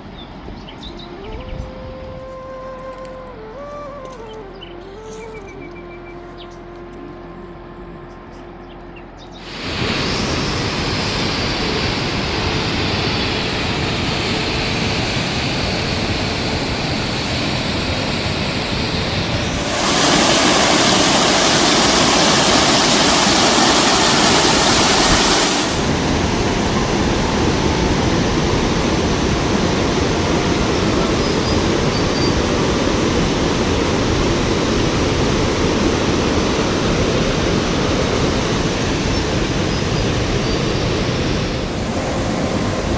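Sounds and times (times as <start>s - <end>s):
heavy rain pouring: 9.5s - 15.9s, 19.4s - 42.9s.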